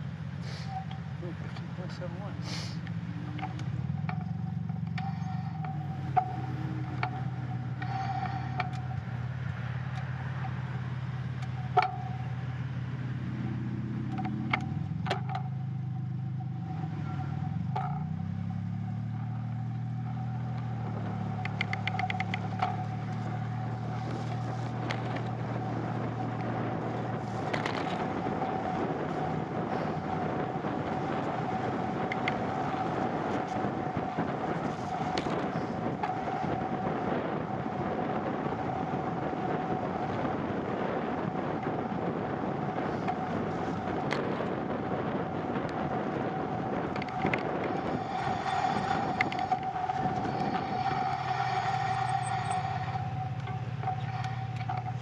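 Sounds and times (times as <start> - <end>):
low engine hum: 0.0 - 55.0.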